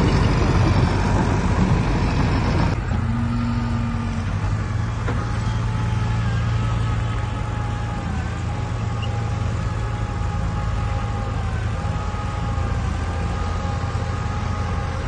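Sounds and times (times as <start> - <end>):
high whine: 0.0 - 2.8
heavy diesel machinery engine hum: 0.0 - 15.0.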